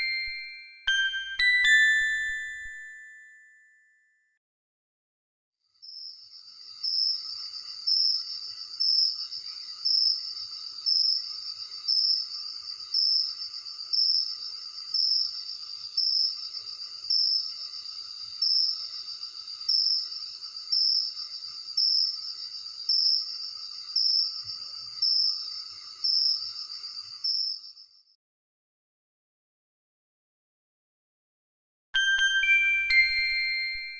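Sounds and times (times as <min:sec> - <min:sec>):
cricket trilling: 0:05.8 - 0:28.0.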